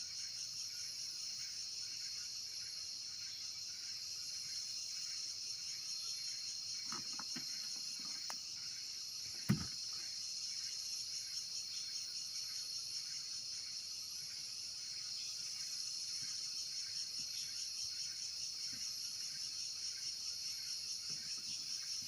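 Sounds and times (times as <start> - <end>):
insects chirring: 0.0 - 22.0
short thump: 9.4 - 9.8.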